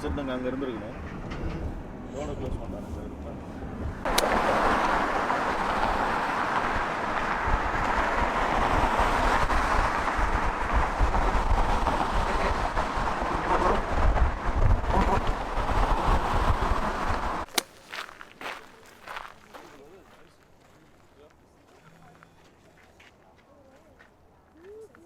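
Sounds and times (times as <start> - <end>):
moving vehicle rushing noise: 0.0 - 17.5
wind buffeting microphone: 0.0 - 18.1.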